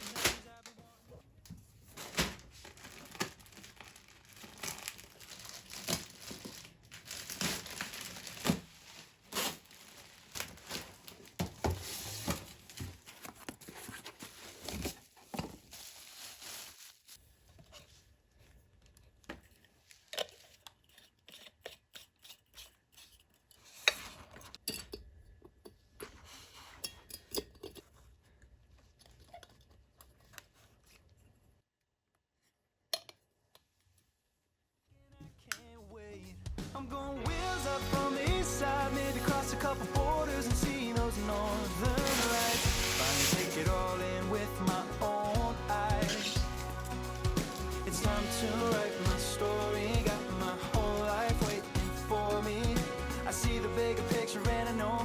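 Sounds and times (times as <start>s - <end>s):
paper tearing and crumpling: 0.0s - 0.7s, 1.9s - 17.2s, 38.9s - 44.4s, 45.0s - 51.9s.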